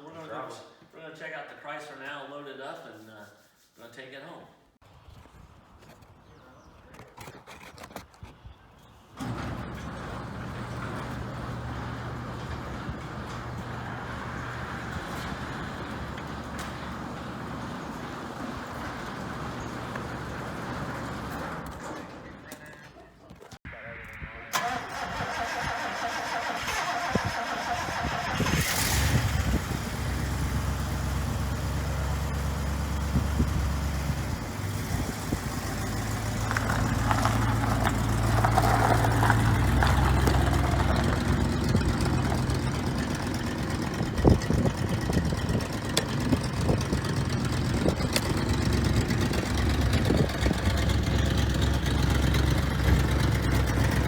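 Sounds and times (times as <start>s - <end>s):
vehicle engine starting and idling: 9.2s - 22.6s, 24.4s - 54.0s.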